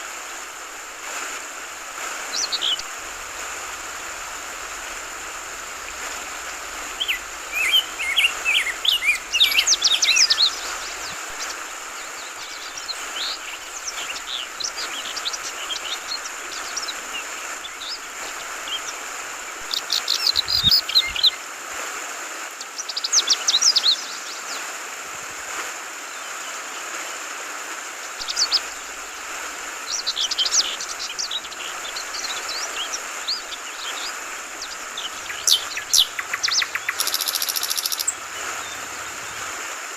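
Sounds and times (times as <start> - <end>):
flowing water hiss: 0.0 - 39.9
birds chirping: 1.7 - 21.3, 28.2 - 39.5.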